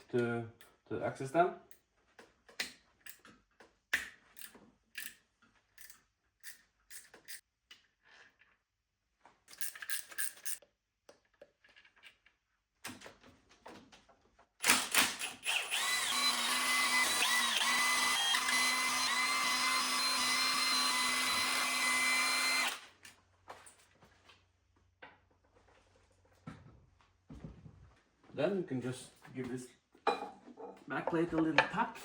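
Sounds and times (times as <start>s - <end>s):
electric drill spinning: 14.6s - 22.9s.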